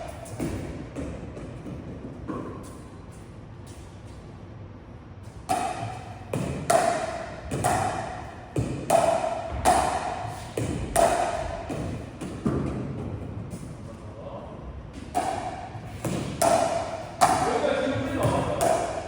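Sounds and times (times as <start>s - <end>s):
paddles hitting plastic ball: 5.5s - 13.7s, 15.0s - 19.0s.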